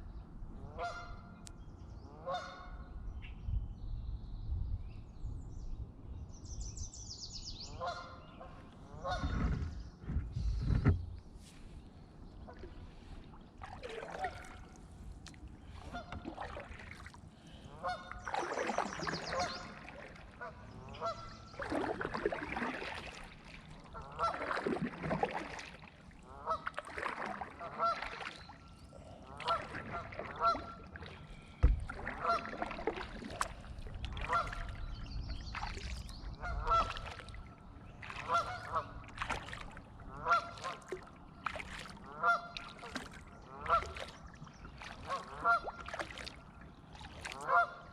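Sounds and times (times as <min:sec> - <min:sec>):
geese honking: 0:17.7 - 0:18.4, 0:20.4 - 0:21.3, 0:23.9 - 0:24.6, 0:26.2 - 0:26.7, 0:27.6 - 0:28.3, 0:29.2 - 0:31.3, 0:32.0 - 0:32.7, 0:34.2 - 0:34.7, 0:36.4 - 0:37.1, 0:38.2 - 0:39.0, 0:40.1 - 0:40.9, 0:42.0 - 0:42.6, 0:43.5 - 0:44.0, 0:45.1 - 0:45.7, 0:47.4 - 0:47.9.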